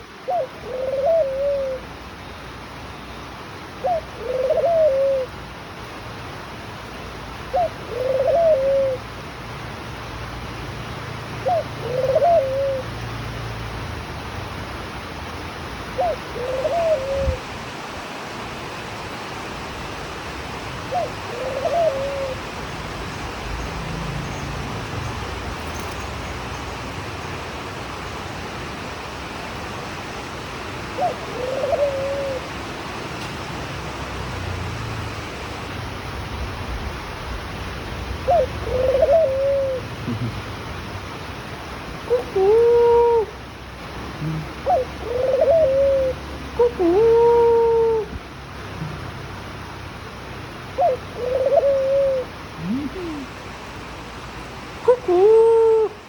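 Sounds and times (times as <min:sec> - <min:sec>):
dove cooing: 0:00.1 - 0:02.0, 0:03.8 - 0:05.4, 0:07.4 - 0:09.1, 0:11.4 - 0:13.1, 0:15.8 - 0:17.4, 0:20.9 - 0:26.0, 0:30.8 - 0:32.6, 0:38.0 - 0:40.7, 0:42.0 - 0:43.5, 0:44.1 - 0:49.4, 0:50.7 - 0:53.6, 0:54.8 - 0:56.0.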